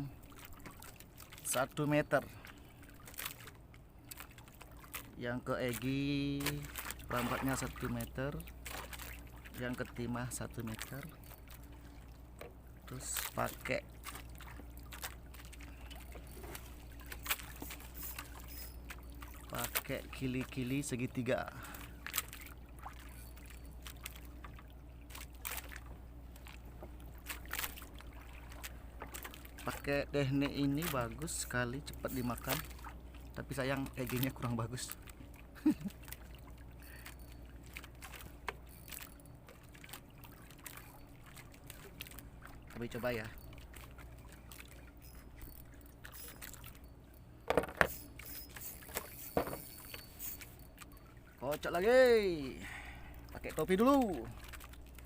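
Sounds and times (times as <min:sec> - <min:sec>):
water splashing against boat hull: 0:00.0 - 0:36.9, 0:37.5 - 0:55.0
steady low hum: 0:00.0 - 0:55.0
fishing tackle knocking and rattling: 0:47.4 - 0:50.0.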